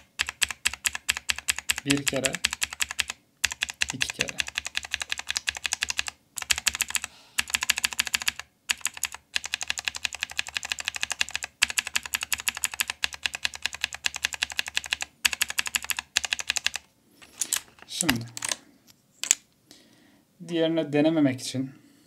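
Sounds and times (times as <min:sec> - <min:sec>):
mechanical keyboard clicks: 0:00.0 - 0:16.8.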